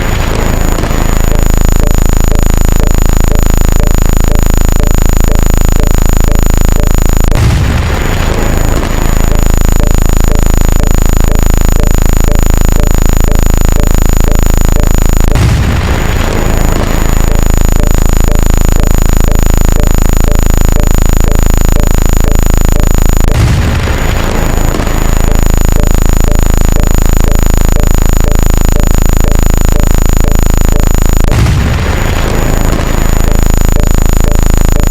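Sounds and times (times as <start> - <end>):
faint electronic blips: 0.0 - 34.9
harsh electronic buzz: 0.0 - 34.9
thin high whine: 0.0 - 34.9.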